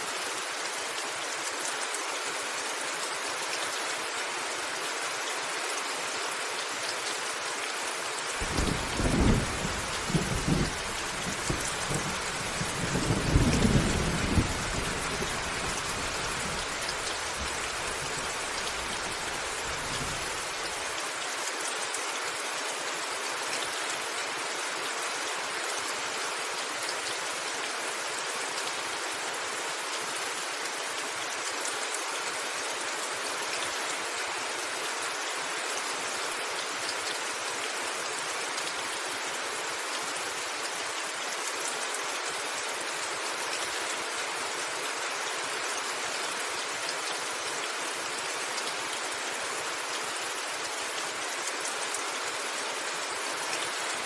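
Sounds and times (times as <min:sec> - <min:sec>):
rain on a rooftop: 0:00.0 - 0:54.0
thunder rumbling: 0:08.4 - 0:16.0.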